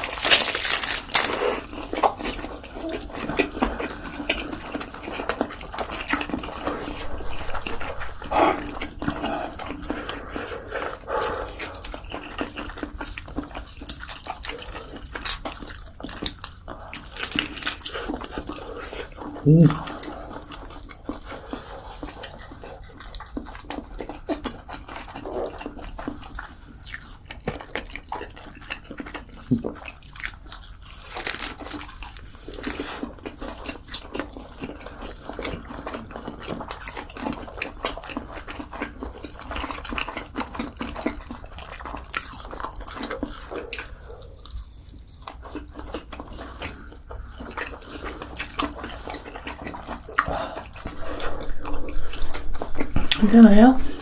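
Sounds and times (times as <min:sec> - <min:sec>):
person chewing and biting: 0:00.0 - 0:53.3.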